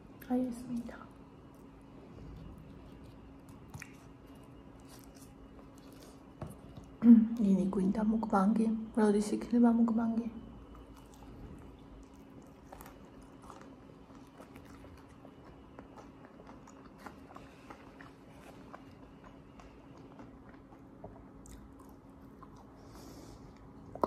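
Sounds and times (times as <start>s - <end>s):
faint steady hum: 0.0s - 24.0s
chewing clicks and crunches: 2.3s - 7.0s, 10.8s - 22.7s.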